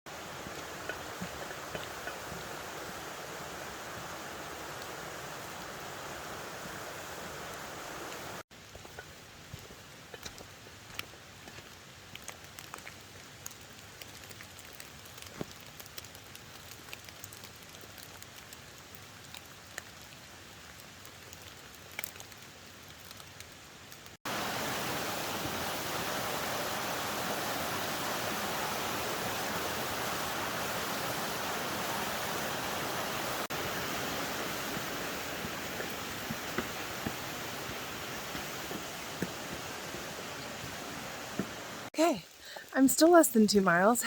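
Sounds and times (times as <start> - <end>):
water rushing: 0.1 - 8.5, 24.2 - 43.9
faint steady hiss: 0.1 - 44.0.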